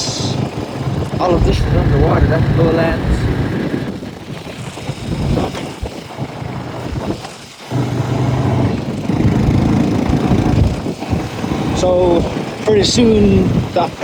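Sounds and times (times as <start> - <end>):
wind buffeting microphone: 0.0 - 14.0
vehicle engine rumbling: 1.2 - 4.2.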